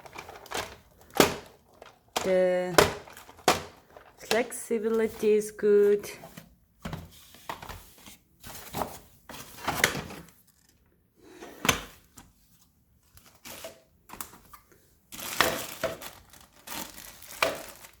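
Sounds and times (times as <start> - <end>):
packaging crinkling: 0.0 - 5.2, 15.1 - 18.0.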